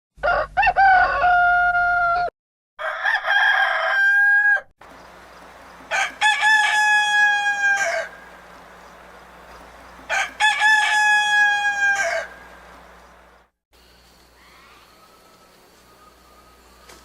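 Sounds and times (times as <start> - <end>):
rooster crowing: 0.2 - 13.4.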